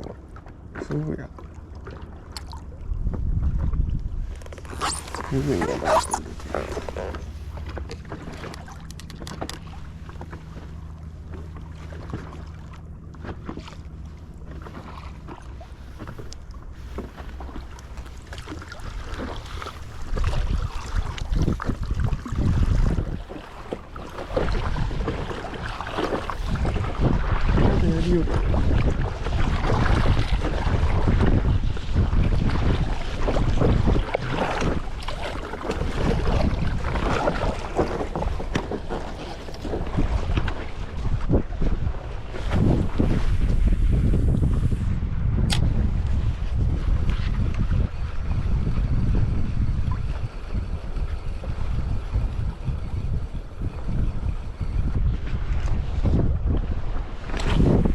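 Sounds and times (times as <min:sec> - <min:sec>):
low steady hum: 0:00.0 - 0:30.4
water lapping and splashing: 0:00.0 - 0:57.9
wind buffeting microphone: 0:00.0 - 0:57.9.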